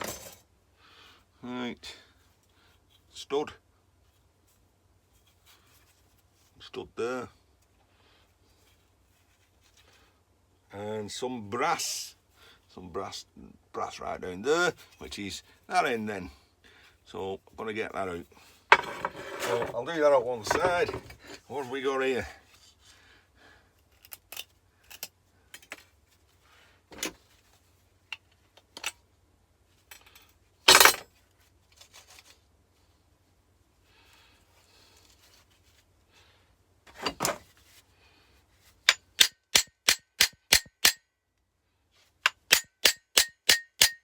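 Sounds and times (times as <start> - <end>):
hammer striking metal: 38.9 - 41.0, 42.3 - 44.0.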